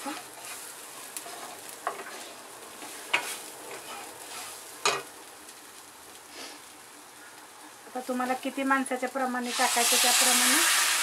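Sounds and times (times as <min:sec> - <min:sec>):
spoon stirring in a pan: 0:00.0 - 0:05.1
food sizzling: 0:00.0 - 0:11.0.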